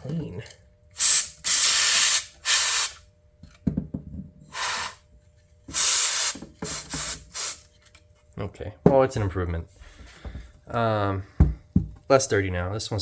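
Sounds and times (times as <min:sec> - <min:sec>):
compressed air blasts hissing: 0:01.0 - 0:03.0, 0:04.5 - 0:05.0, 0:05.7 - 0:07.6.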